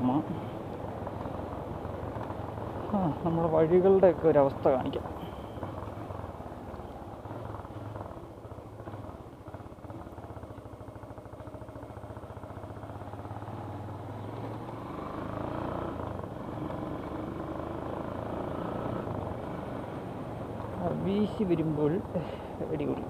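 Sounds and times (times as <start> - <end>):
motorcycle engine at low speed: 0.0 - 23.0.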